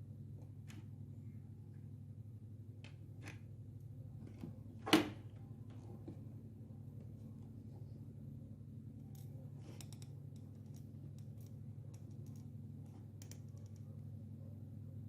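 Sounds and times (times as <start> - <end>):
steady low hum: 0.0 - 15.0
small irregular clicks and taps: 9.1 - 13.9.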